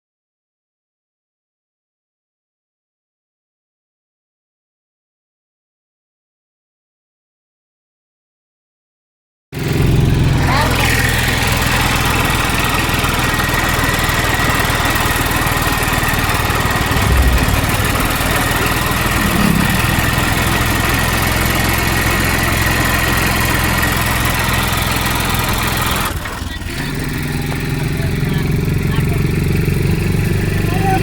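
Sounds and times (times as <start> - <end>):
vehicle engine running: 9.7 - 31.0
heavy rushing noise: 16.8 - 21.0.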